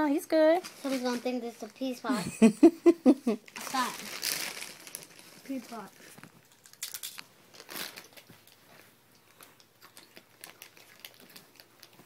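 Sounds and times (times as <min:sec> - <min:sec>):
person chewing crunchy chips: 0:06.0 - 0:12.0.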